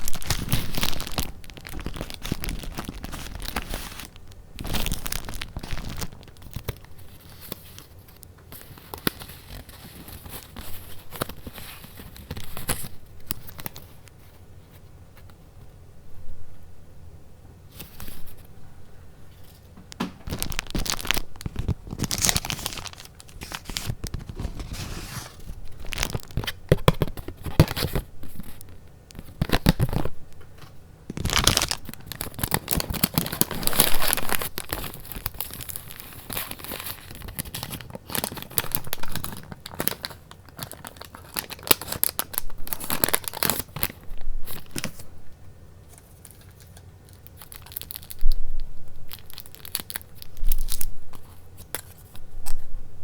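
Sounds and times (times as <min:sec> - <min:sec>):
paper rustling and tearing: 0:00.0 - 0:13.9, 0:19.4 - 0:28.6, 0:31.2 - 0:45.0.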